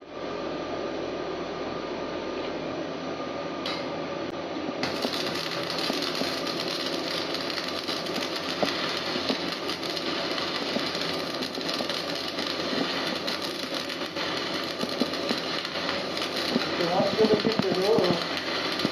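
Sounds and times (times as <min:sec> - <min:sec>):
welding arc crackling and hissing: 0:04.8 - 0:18.9.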